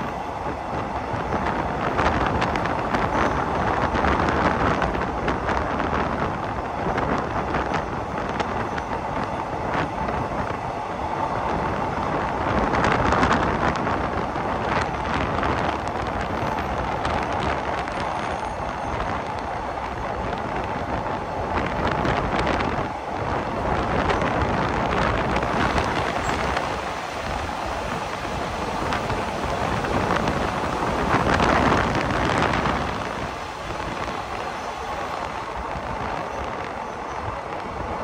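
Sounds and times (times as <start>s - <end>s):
train wheels on rails: 0.0s - 38.0s
wind rushing: 18.9s - 38.0s.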